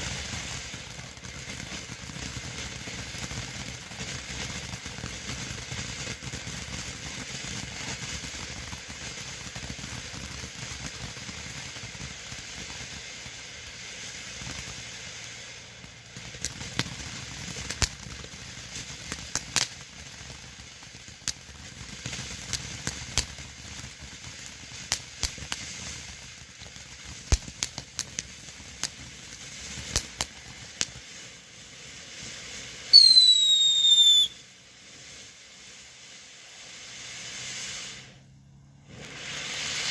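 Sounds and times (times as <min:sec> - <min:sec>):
sharp crackling pops: 0:00.0 - 0:31.4, 0:32.2 - 0:34.6
firework fountain hissing: 0:00.0 - 0:39.9
falling whistle: 0:32.9 - 0:34.4.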